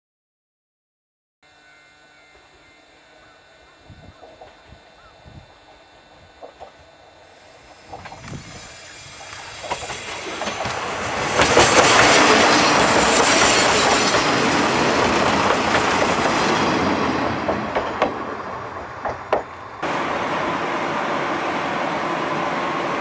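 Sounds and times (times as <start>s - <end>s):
train passing: 5.6s - 23.0s
wheel clacks over rail joints: 9.1s - 16.5s, 17.2s - 19.6s.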